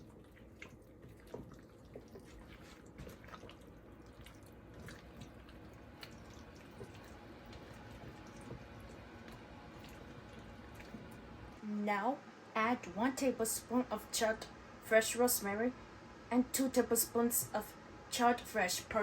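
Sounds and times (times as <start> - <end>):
food stirred in bowl clicking: 0.0 - 11.4.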